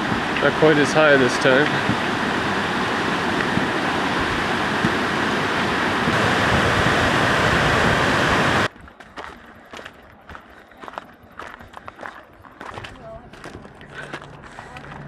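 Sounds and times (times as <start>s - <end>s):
river water roaring: 0.0s - 8.7s.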